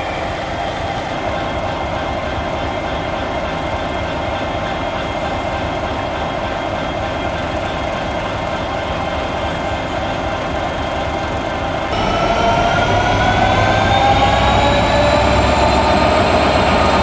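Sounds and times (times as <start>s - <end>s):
train rumbling: 0.0s - 17.0s
faint steady high tones: 11.9s - 17.0s.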